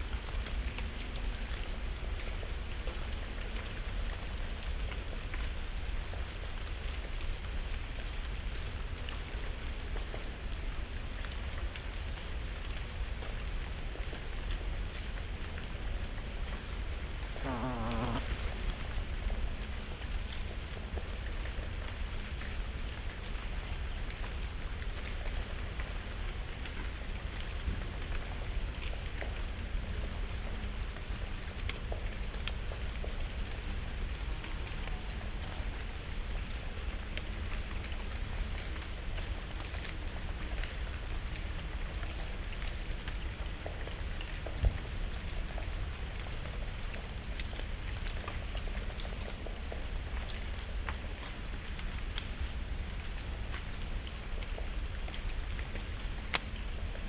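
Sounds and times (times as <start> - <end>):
thin high bird calls: 17.4 - 18.5.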